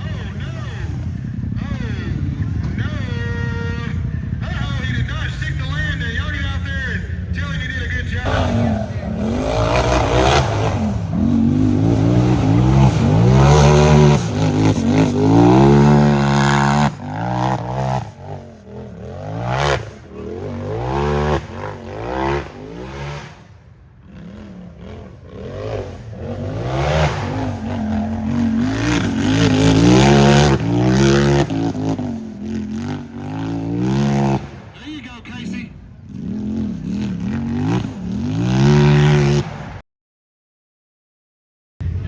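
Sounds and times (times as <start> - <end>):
engine revving hard: 8.2 - 34.7, 36.1 - 39.8.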